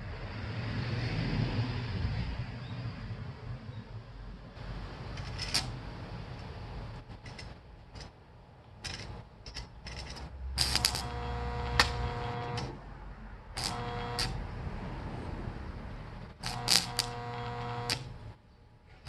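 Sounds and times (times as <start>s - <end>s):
electric buzz: 4.6s - 5.9s, 9.9s - 12.8s, 13.5s - 14.5s, 16.1s - 19.0s
loud click: 8.8s - 12.8s.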